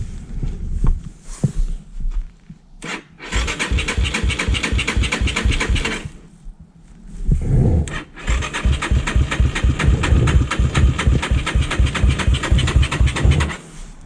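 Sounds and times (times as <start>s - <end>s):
engine cranking on electric starter: 2.8s - 6.3s, 7.8s - 14.0s.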